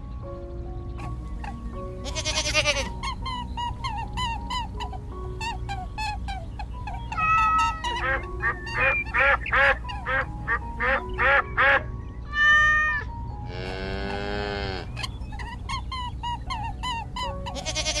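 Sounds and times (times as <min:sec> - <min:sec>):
duck quacking: 0:07.0 - 0:13.1
buzzy animal call: 0:07.1 - 0:15.1.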